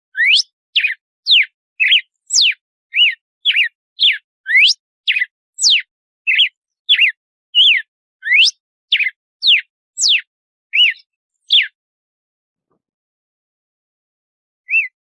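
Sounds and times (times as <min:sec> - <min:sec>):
bird whistling song: 0:00.1 - 0:11.8, 0:14.6 - 0:15.0.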